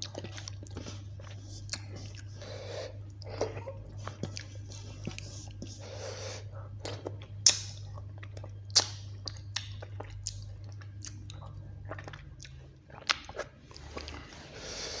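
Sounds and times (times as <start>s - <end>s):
chewing and biting food: 0.0s - 5.8s, 6.7s - 14.6s
steady low hum: 0.0s - 15.0s.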